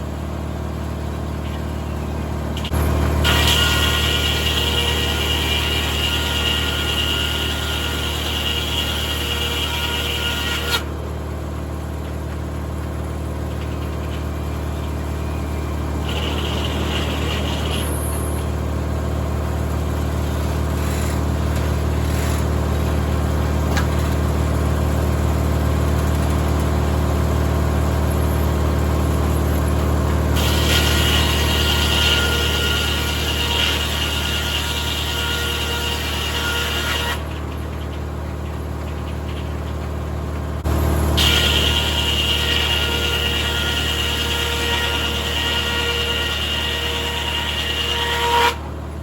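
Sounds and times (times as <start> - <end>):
engine drone: 0.0 - 49.0
saw whine: 2.6 - 10.9, 13.4 - 23.2, 27.8 - 39.6, 40.7 - 48.7.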